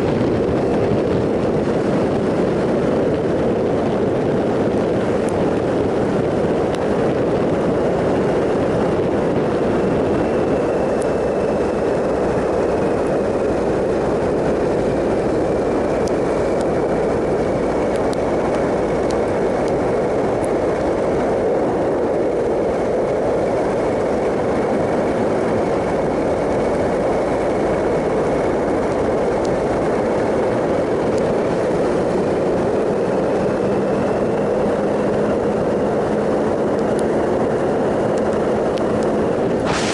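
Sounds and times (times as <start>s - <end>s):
motorcycle engine cruising: 0.0s - 39.9s
wind noise: 0.0s - 39.9s
faint high whine: 39.6s - 39.9s.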